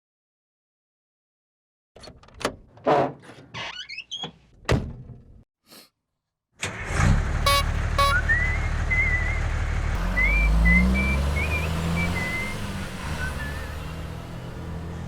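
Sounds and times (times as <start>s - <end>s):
truck engine rumbling: 6.7s - 15.0s
short beeps: 7.5s - 8.3s
person whistling a tune: 7.5s - 9.4s, 10.1s - 12.6s, 13.2s - 13.8s.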